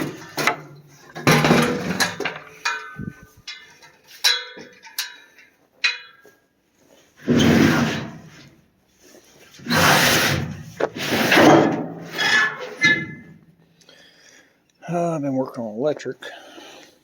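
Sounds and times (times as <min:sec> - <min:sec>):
rustling and scraping: 0:00.0 - 0:13.8
sharp ringing clanks: 0:01.2 - 0:06.3.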